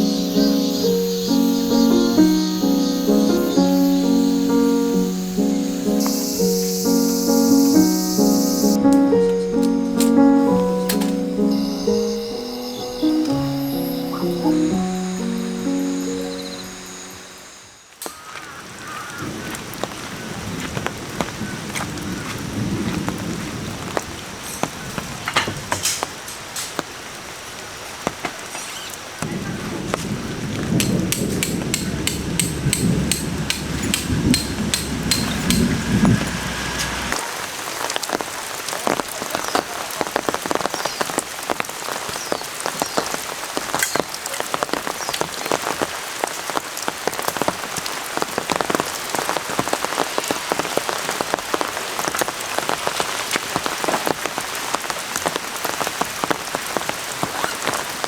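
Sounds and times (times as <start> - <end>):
rain pattering: 0.0 - 58.0
low rumble: 31.9 - 37.2.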